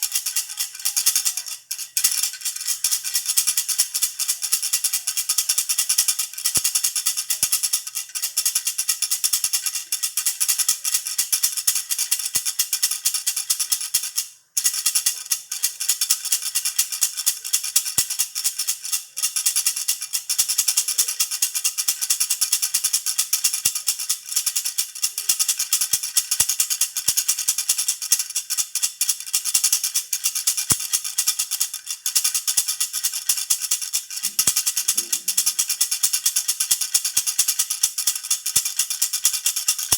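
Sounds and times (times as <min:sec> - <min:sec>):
baby rattle shaking: 0:00.0 - 0:39.9.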